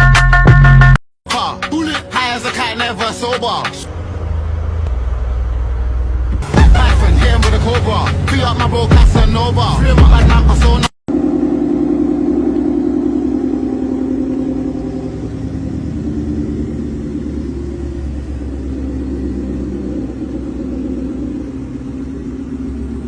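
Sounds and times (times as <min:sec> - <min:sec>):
sports car exhaust rumble: 0:04.7 - 0:23.0.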